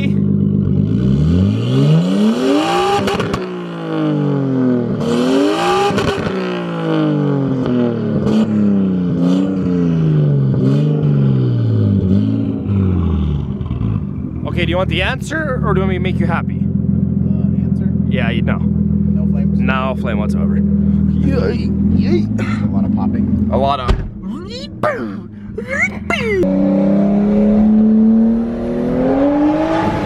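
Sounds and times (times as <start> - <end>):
car engine revving: 0.0 - 30.0
exhaust popping: 7.4 - 28.1.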